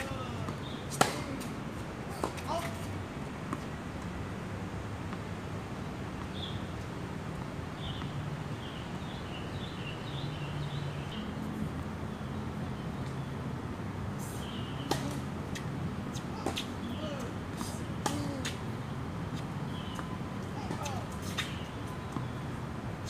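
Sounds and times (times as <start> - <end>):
birds chirping: 0.0 - 1.4, 19.6 - 22.4.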